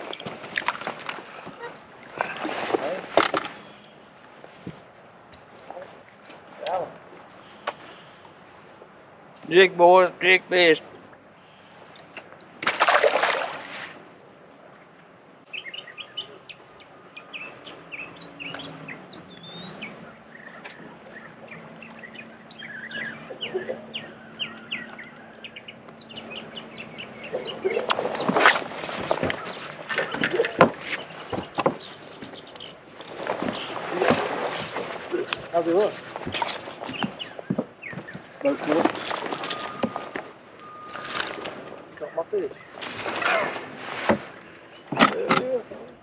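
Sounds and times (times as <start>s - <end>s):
birds chirping: 0.0s - 12.6s, 14.6s - 46.0s.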